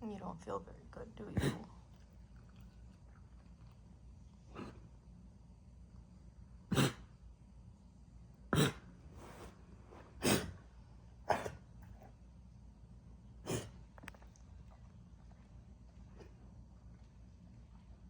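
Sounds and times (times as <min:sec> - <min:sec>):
dog coughing: 0:01.3 - 0:01.8, 0:04.5 - 0:04.9, 0:06.7 - 0:07.1, 0:08.5 - 0:09.5, 0:10.1 - 0:12.1, 0:13.4 - 0:13.8.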